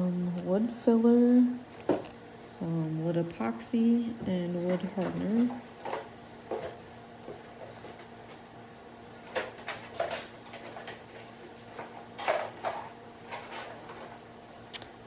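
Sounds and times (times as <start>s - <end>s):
boxes knocking and rustling: 4.5s - 8.4s, 9.2s - 14.2s.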